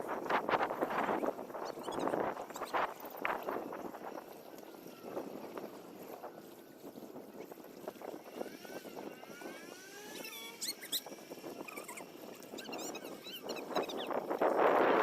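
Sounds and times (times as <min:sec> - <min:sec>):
water splashing around kayak: 0:00.1 - 0:15.0.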